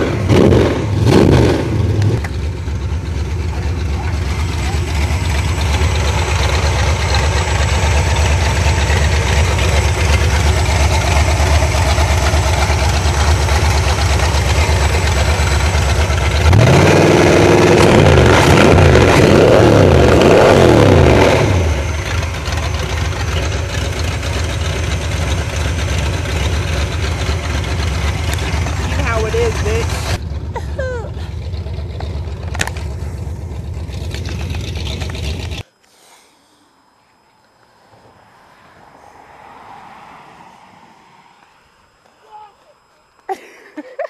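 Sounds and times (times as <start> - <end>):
engine idling and revving: 0.0 - 35.7.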